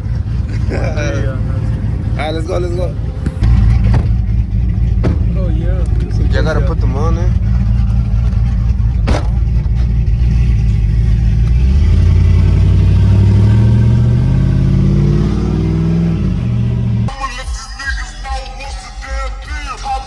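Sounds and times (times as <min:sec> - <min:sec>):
truck engine accelerating: 0:00.0 - 0:17.1.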